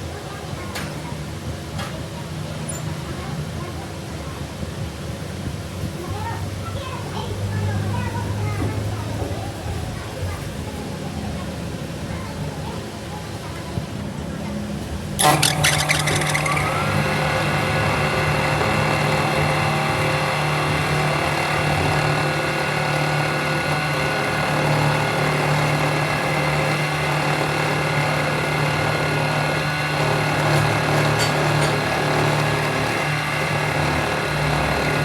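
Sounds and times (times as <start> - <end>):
machine hum and whine: 15.1 - 35.0
machine clatter: 15.2 - 35.0.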